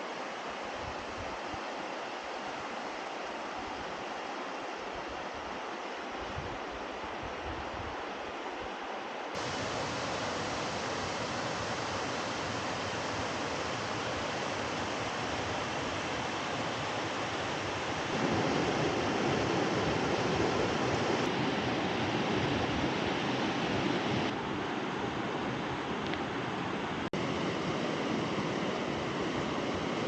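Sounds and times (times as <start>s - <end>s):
river water rushing: 8.1s - 30.0s.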